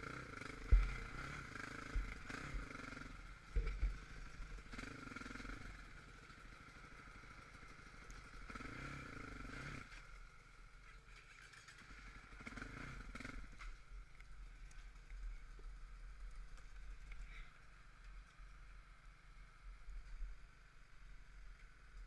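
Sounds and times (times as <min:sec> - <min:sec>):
quad engine idling and revving: 0:00.0 - 0:10.0, 0:11.6 - 0:13.7.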